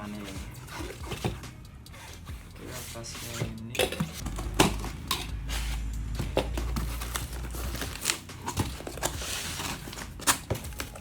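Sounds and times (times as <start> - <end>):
packaging crinkling and tearing: 6.6 - 11.0.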